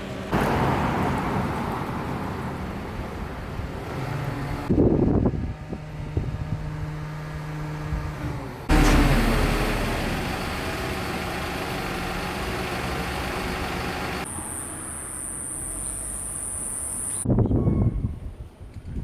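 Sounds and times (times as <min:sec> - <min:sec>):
low engine hum: 0:00.0 - 0:14.3
road traffic noise: 0:00.0 - 0:17.2.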